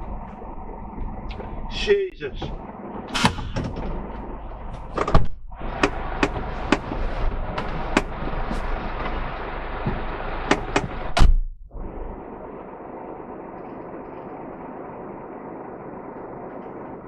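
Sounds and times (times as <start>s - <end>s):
wind and road noise: 0.0s - 11.9s
car door opening: 2.3s - 11.5s
knocks and clicks: 2.4s - 8.4s, 9.8s - 11.7s
car door slamming shut: 3.1s - 3.9s, 10.5s - 11.5s.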